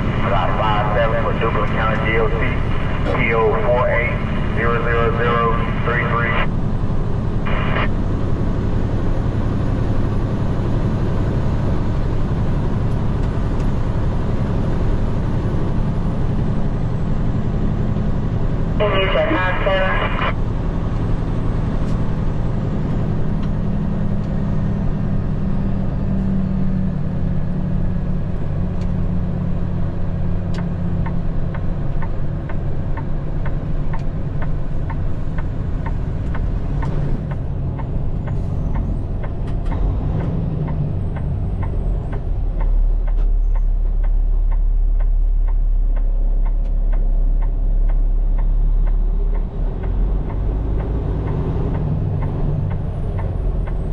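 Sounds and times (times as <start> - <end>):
diesel truck engine running: 0.0 - 53.9
regular ticking: 31.0 - 53.9.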